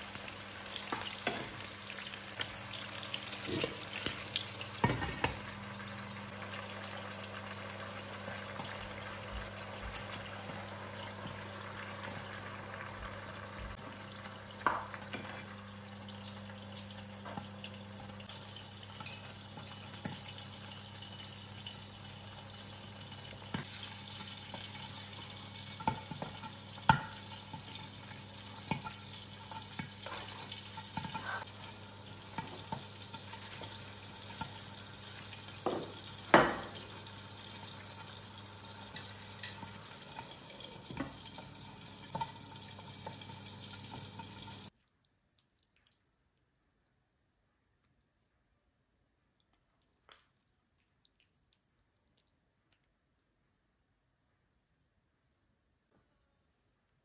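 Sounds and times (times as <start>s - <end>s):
food sizzling in a pan: 0.0s - 44.8s
utensil knocking on cookware: 35.6s - 36.8s.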